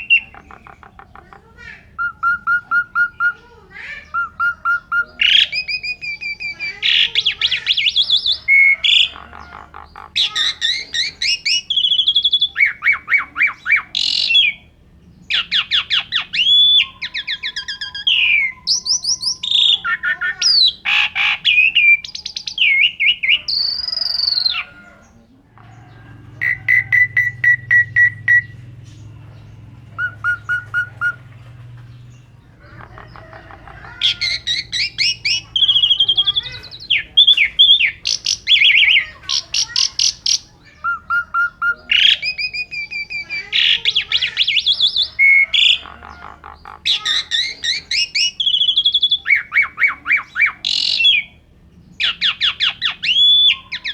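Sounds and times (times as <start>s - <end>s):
starling singing: 0.0s - 53.9s
low steady hum: 24.6s - 39.6s.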